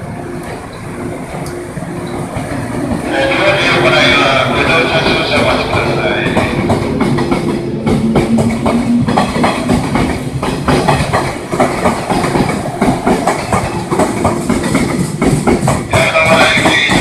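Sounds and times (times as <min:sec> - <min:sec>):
train wheels clattering on rails: 0:00.0 - 0:17.0.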